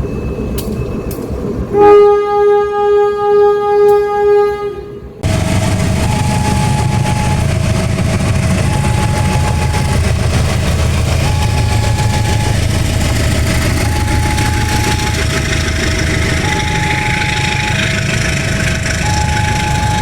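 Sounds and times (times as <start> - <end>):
rumble of passing train: 0.0 - 20.0
locomotive horn blast: 1.7 - 7.8
two-tone warning signal: 5.2 - 18.2, 18.9 - 20.0.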